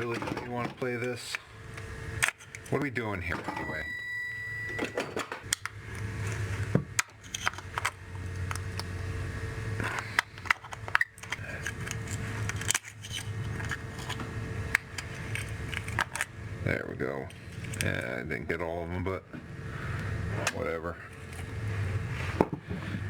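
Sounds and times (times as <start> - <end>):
parts clicking and scraping: 0.0 - 2.8, 5.1 - 9.0, 9.8 - 16.4, 17.2 - 18.0
steady low hum: 0.0 - 23.0.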